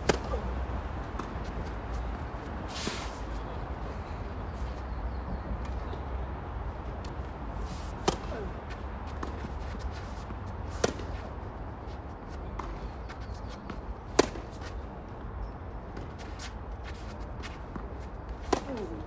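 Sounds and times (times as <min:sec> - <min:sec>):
tennis ball struck by racket: 0:00.0 - 0:00.5, 0:08.0 - 0:08.5, 0:10.7 - 0:11.2, 0:13.7 - 0:14.7, 0:18.4 - 0:19.0
faint ticks and scuffs: 0:16.2 - 0:17.7.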